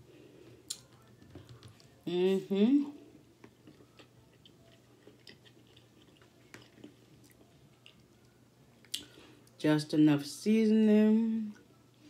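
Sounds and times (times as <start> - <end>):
chewing pasta: 3.0 - 9.6.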